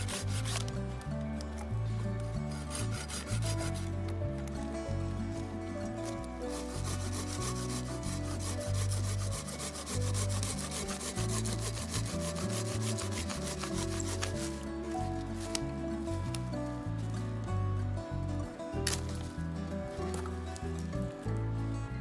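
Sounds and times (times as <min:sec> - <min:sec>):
hand saw cutting wood: 0:00.0 - 0:04.6, 0:06.0 - 0:17.2, 0:20.0 - 0:21.0
background music: 0:00.0 - 0:22.0.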